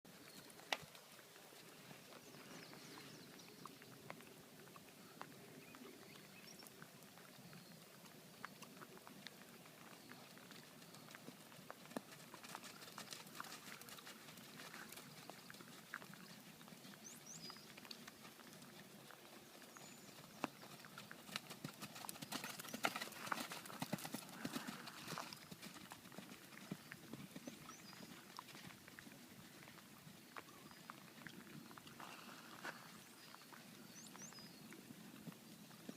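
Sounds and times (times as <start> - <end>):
horse hooves clip-clopping: 0.1 - 35.9.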